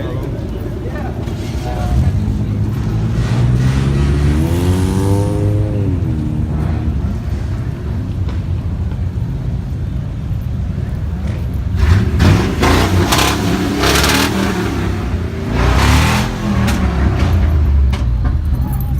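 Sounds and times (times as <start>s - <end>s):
car engine revving: 1.2s - 7.6s, 11.7s - 18.0s.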